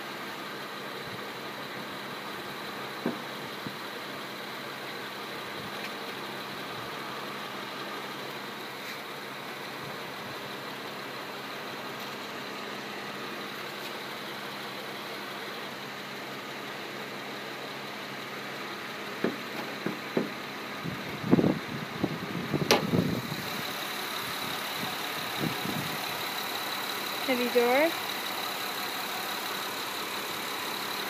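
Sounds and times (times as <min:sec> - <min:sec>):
car engine idling: 0:00.0 - 0:31.0
knocks and clunks: 0:03.0 - 0:03.3, 0:19.2 - 0:20.4, 0:22.6 - 0:23.0.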